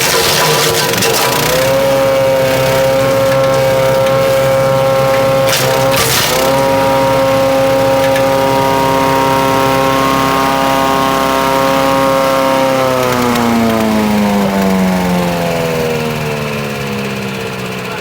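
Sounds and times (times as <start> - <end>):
branch crunching in chipper: 0.0 - 8.3
wood chipper engine running: 0.0 - 18.0.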